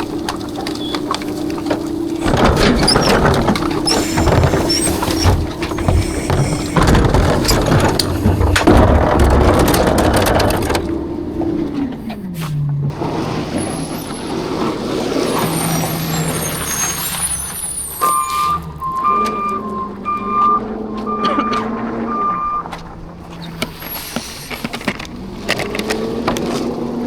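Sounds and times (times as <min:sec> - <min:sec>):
dense clattering: 0:00.0 - 0:23.9
garbage truck engine: 0:00.0 - 0:27.0
reverse alarm beeping: 0:15.6 - 0:22.8.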